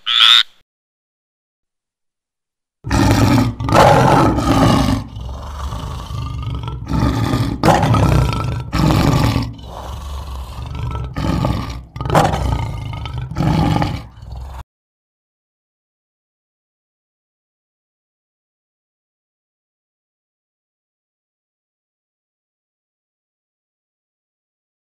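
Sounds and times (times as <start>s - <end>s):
lower quieter animal sound: 0.0s - 0.6s, 2.9s - 14.6s
animal roaring: 2.8s - 14.6s.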